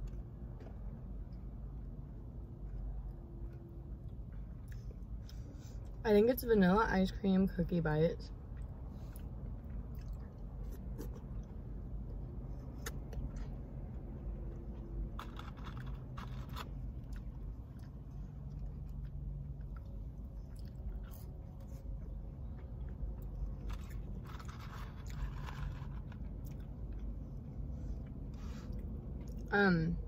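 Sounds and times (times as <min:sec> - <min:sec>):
person chewing crunchy food: 0:00.0 - 0:06.0, 0:08.4 - 0:29.5.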